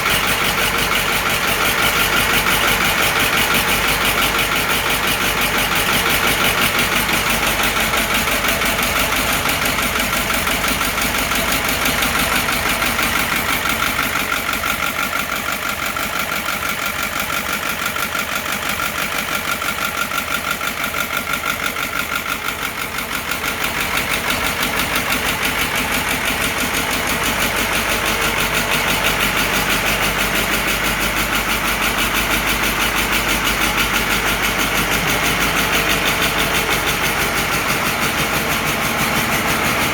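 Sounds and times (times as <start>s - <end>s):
diesel tractor engine idling: 0.0s - 39.9s.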